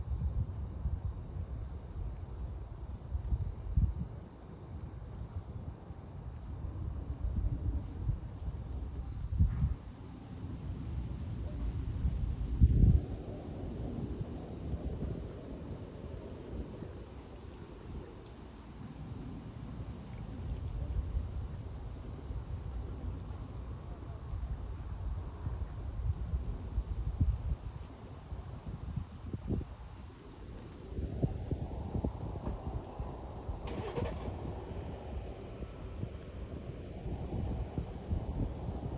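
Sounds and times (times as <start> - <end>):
insect chirping: 26.4 - 38.9.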